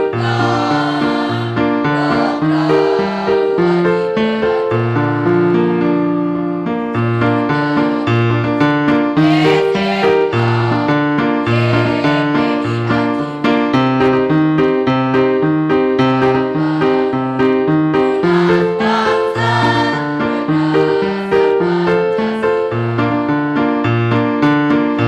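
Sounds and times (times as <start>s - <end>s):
choir singing: 0.0s - 5.2s, 7.3s - 13.6s, 16.1s - 17.4s, 18.0s - 23.0s
keyboard march accompaniment: 0.0s - 25.0s.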